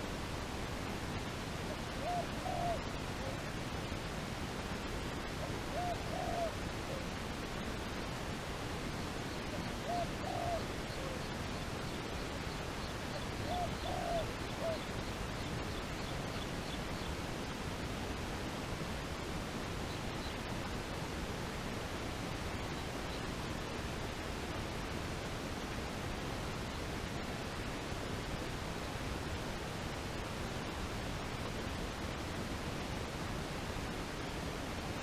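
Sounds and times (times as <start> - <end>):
background hiss: 0.0 - 35.0
dove cooing: 1.7 - 3.5, 5.4 - 7.2, 9.5 - 11.3, 13.1 - 14.9.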